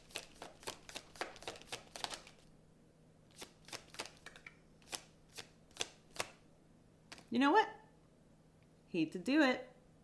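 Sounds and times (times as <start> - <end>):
cards being shuffled: 0.0 - 2.5, 3.3 - 6.4, 7.1 - 7.3.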